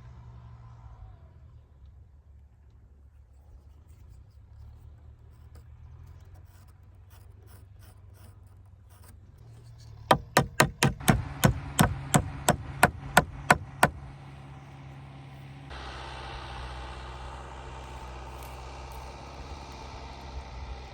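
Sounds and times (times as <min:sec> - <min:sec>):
low steady hum: 0:02.6 - 0:20.9
hammer blows: 0:10.1 - 0:14.2.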